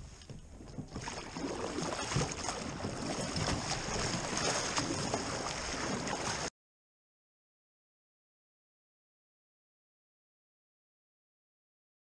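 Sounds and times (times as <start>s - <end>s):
water splashing around kayak: 0.0s - 6.5s
wind on microphone: 0.0s - 6.5s.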